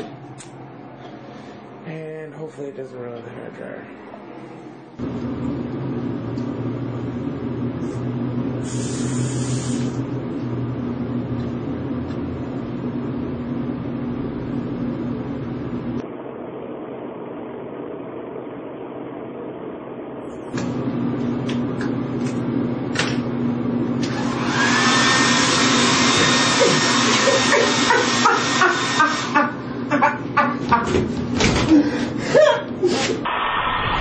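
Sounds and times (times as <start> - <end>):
low electric hum: 0.0 - 24.1, 28.2 - 34.0
hair dryer blowing: 7.8 - 10.1, 24.0 - 30.2
brief high hiss: 8.6 - 10.0.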